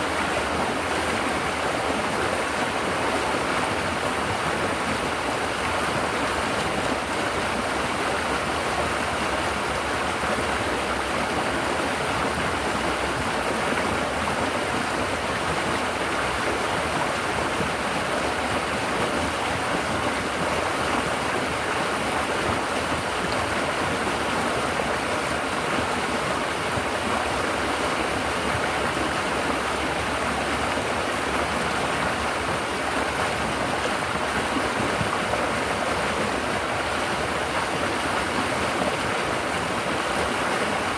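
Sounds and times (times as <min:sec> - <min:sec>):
river water flowing over rocks: 0:00.0 - 0:40.9.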